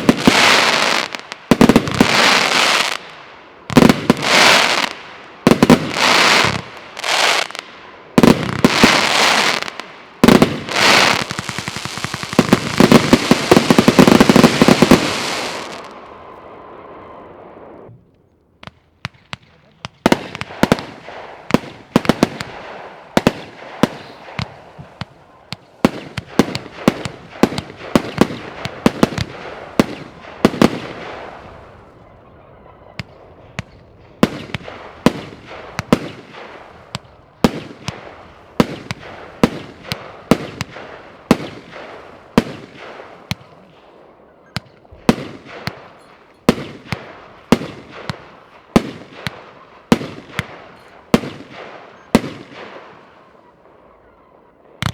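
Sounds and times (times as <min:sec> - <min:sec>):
firework battery shots: 0:08.2 - 0:16.5.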